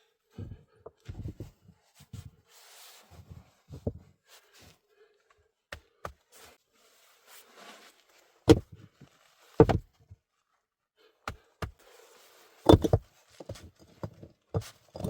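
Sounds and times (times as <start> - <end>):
knocks and thuds: 9.6 - 9.8, 12.7 - 13.0.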